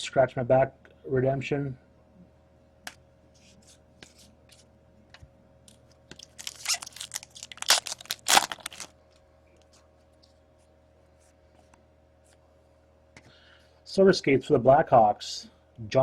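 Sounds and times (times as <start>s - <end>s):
foil wrapper tearing and crinkling: 6.2s - 8.9s.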